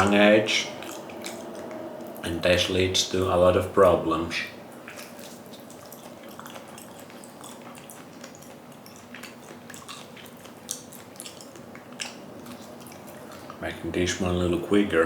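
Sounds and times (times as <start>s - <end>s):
person chewing: 0.7s - 2.3s, 4.7s - 13.6s.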